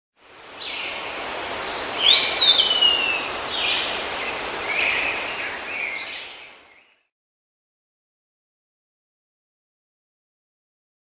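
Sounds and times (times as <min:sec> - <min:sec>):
steady outdoor hiss: 0:00.2 - 0:07.1
bird calls: 0:00.6 - 0:07.1.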